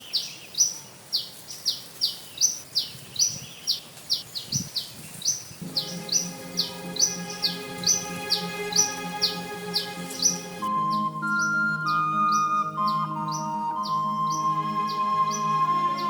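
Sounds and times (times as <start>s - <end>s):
bird chirping: 0.0s - 16.0s
background music: 5.6s - 16.0s.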